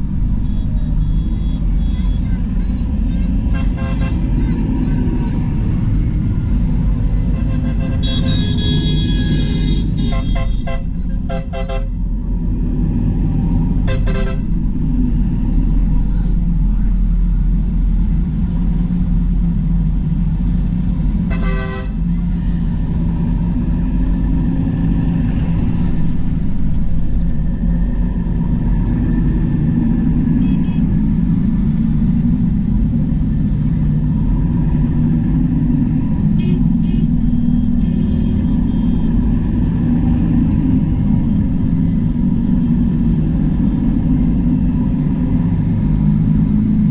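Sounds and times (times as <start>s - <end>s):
tractors driving past: 0.0s - 46.9s
vehicle horn tooting: 0.4s - 4.4s, 7.3s - 12.0s, 13.9s - 14.5s, 21.3s - 22.0s, 30.4s - 30.8s, 36.4s - 39.1s.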